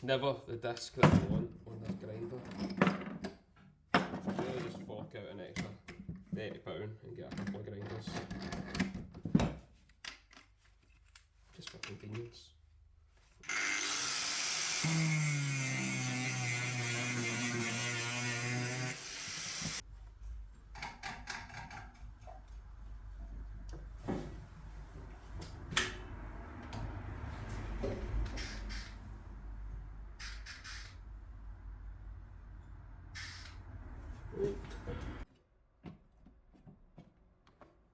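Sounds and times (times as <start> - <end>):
angle grinder cutting steel: 13.4 - 19.8.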